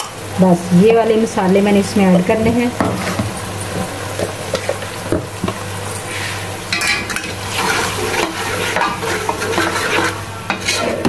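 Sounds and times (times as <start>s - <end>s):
food sizzling in oil: 0.0s - 11.0s
wooden spoon scraping a pot: 2.8s - 11.0s.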